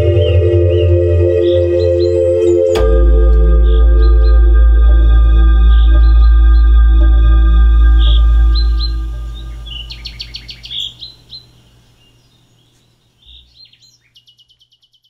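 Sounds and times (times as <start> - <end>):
birds whistling and trilling: 0.0 - 4.6, 5.6 - 6.7, 7.8 - 15.0
synth music drone: 0.0 - 10.8.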